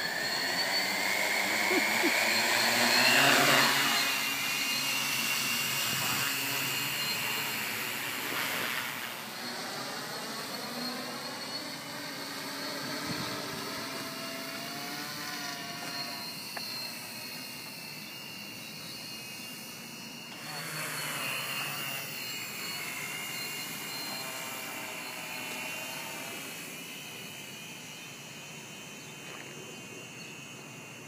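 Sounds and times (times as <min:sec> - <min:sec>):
electric helicopter rotors whining: 0:00.0 - 0:31.0.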